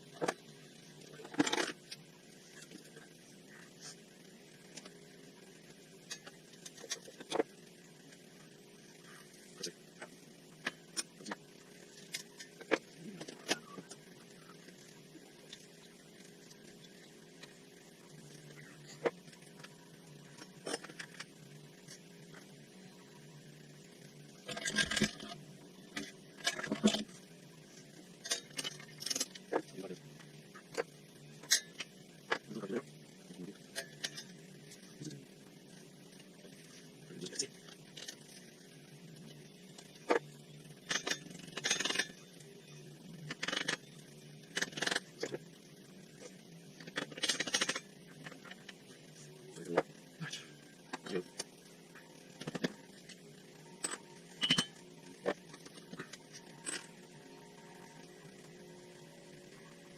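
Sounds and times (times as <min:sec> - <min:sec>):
faint steady hum: 0:00.0 - 0:59.9
metal clinking and scraping: 0:01.1 - 0:04.0, 0:18.2 - 0:22.5, 0:24.4 - 0:32.8, 0:33.5 - 0:34.9, 0:39.8 - 0:42.4, 0:43.2 - 0:45.5, 0:46.2 - 0:58.5
metal tools clinking: 0:53.8 - 0:54.8.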